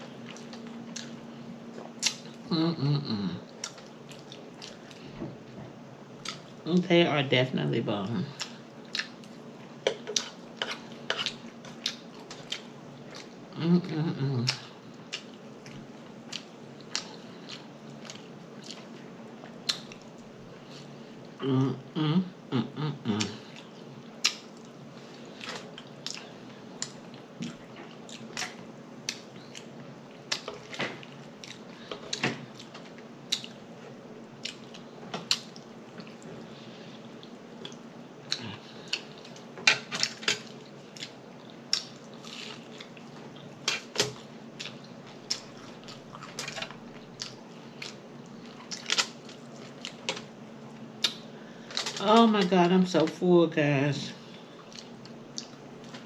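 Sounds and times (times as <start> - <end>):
steady low hum: 0.0 - 56.0
wet chewing and lip smacking: 23.6 - 24.8, 33.3 - 33.6, 34.4 - 36.3, 44.6 - 50.2, 54.6 - 56.0.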